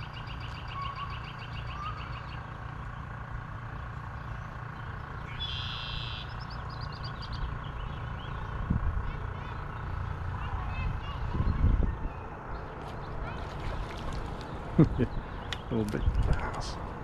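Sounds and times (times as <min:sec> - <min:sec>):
songbirds singing: 0:00.0 - 0:17.0
steady low rumble: 0:00.0 - 0:17.0.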